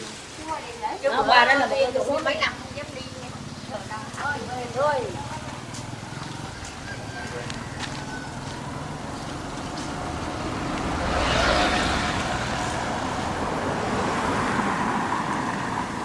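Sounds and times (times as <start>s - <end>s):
vehicle passing close by: 4.6s - 16.0s.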